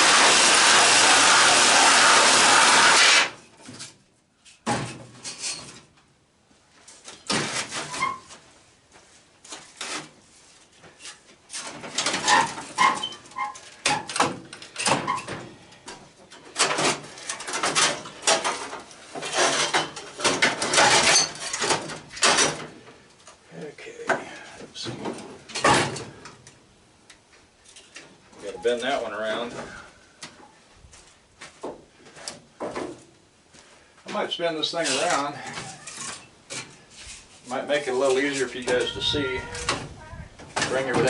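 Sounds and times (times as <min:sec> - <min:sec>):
metal clanks and rattles: 0:11.5 - 0:22.8.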